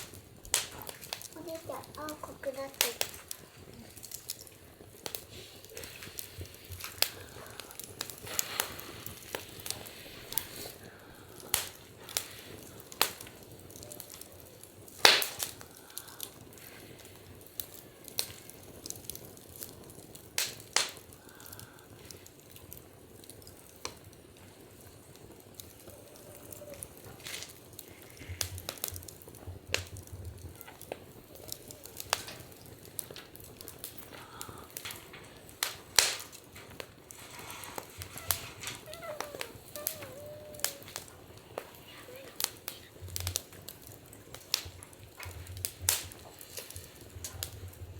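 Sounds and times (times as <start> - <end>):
soft steady hiss: 0.0 - 47.9
wood fire crackling and popping: 0.0 - 47.9.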